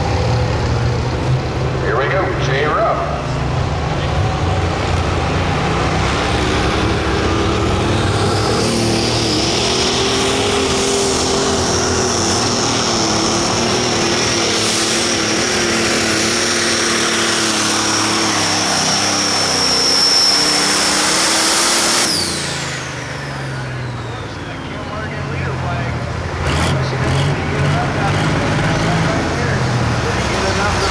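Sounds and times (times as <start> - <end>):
tractor diesel engine at full throttle: 0.0 - 30.9
high turbo whistle: 16.9 - 24.9.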